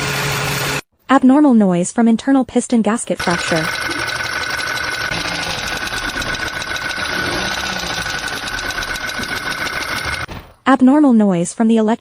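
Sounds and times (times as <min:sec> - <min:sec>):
rapid ticking knock: 0:03.2 - 0:10.3
car engine running: 0:03.2 - 0:10.6.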